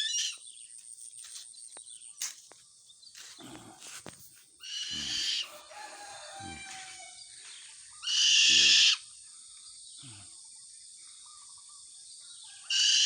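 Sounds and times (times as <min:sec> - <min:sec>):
owl screeching: 0:00.0 - 0:00.4, 0:04.6 - 0:05.6, 0:08.0 - 0:09.1, 0:12.6 - 0:13.0.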